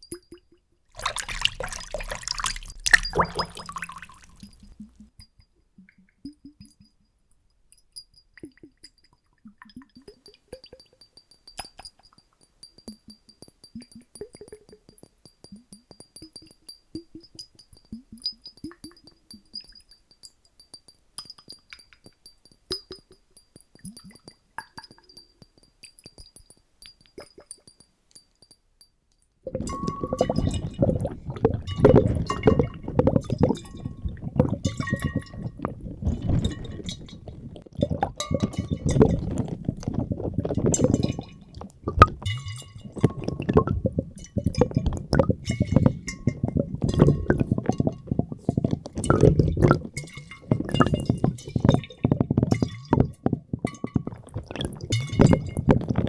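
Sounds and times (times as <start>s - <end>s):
small water plinks: 0.0s - 56.0s
water sloshing and bubbling: 0.1s - 5.2s, 29.4s - 56.0s
bubble-like blips: 1.0s - 4.8s, 29.5s - 56.0s.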